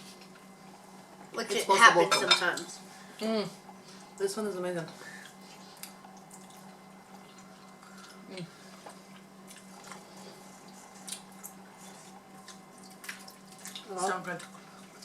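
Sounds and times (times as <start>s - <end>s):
steady low hum: 0.0s - 15.0s
wet chewing: 5.2s - 15.0s.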